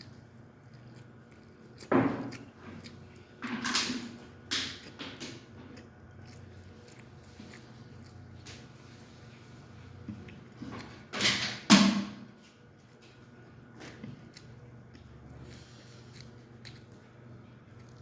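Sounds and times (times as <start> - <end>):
bites crunching chicken: 0.0 - 8.8
soft chewing: 0.0 - 11.1, 12.4 - 18.0.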